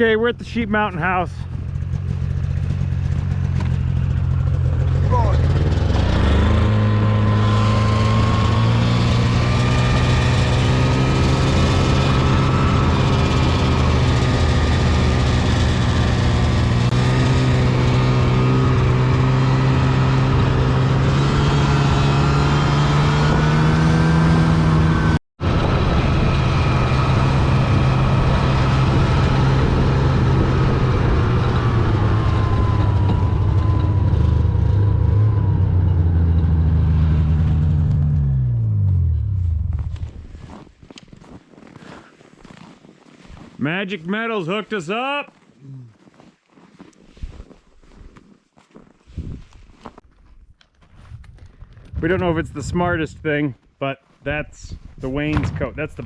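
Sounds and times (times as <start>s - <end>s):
vehicle engine running under load: 1.2s - 40.5s.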